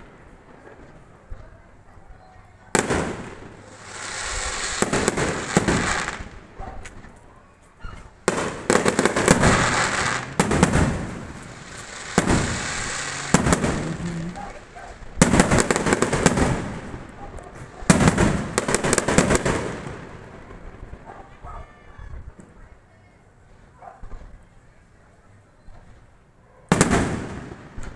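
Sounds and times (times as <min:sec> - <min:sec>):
fireworks bangs: 0:02.7 - 0:07.2, 0:08.0 - 0:21.1, 0:26.7 - 0:27.9
firework crackling: 0:02.8 - 0:07.1, 0:08.1 - 0:21.0.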